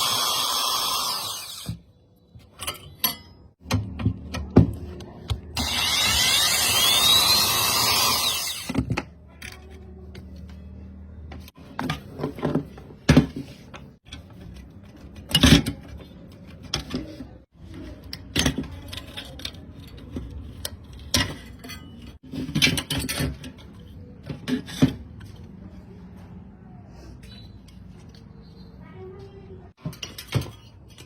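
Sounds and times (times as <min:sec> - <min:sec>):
metal tools clinking and clattering: 0:02.5 - 0:03.6.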